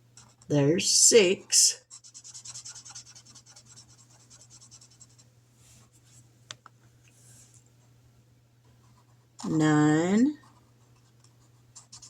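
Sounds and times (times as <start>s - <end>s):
pen scribbling on paper: 1.4s - 5.2s, 10.4s - 12.0s.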